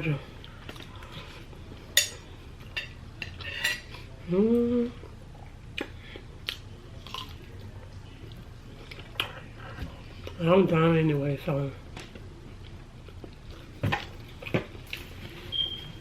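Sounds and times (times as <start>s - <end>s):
person humming: 4.2s - 5.0s.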